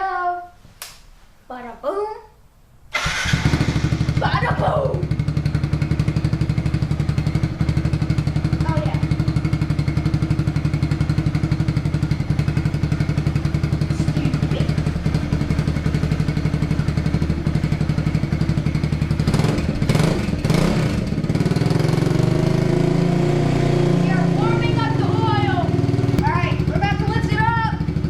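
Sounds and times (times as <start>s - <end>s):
motorcycle engine idling: 2.9s - 22.6s, 24.0s - 28.0s.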